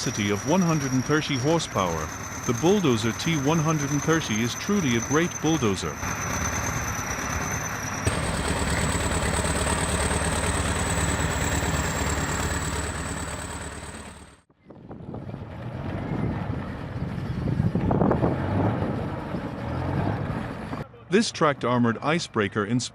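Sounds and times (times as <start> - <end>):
bulldozer engine running: 0.0 - 14.5
machine engine noise: 0.0 - 14.5.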